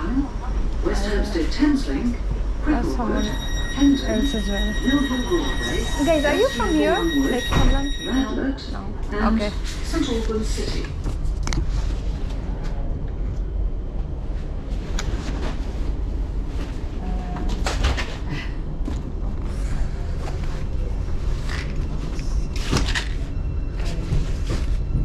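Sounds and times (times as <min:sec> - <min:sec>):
train carriage rumble: 0:00.0 - 0:25.0.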